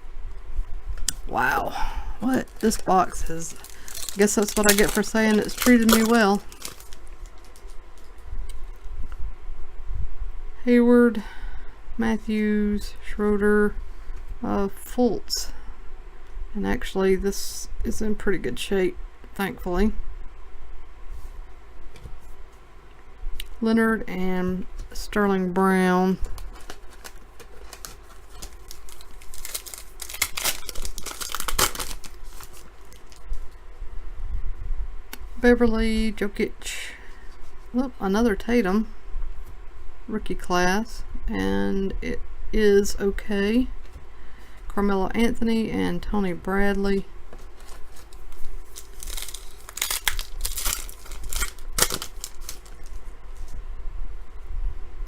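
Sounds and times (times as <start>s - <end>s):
wrapper tearing and crinkling: 2.2s - 7.8s, 26.3s - 33.2s, 47.4s - 53.0s.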